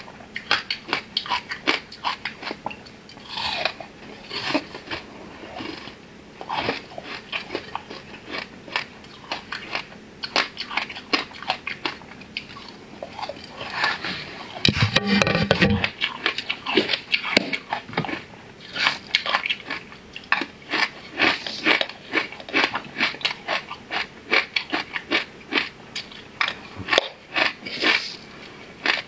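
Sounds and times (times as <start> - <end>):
crunching hard sweet: 15.8 - 28.2.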